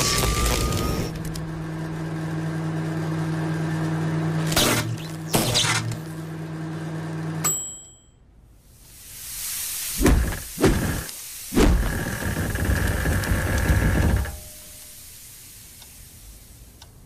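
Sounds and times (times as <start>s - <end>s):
low hum: 0.0s - 9.0s
high ringing tones: 7.4s - 8.4s.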